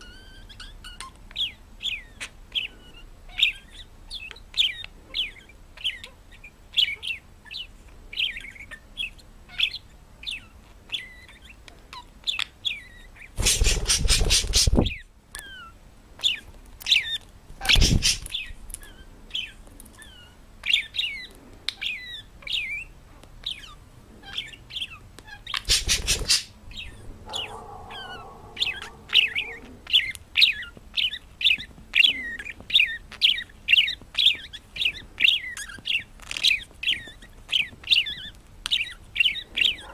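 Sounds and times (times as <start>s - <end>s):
parrot chirping: 0.0s - 39.9s
drawn-out pitched call: 25.7s - 30.1s.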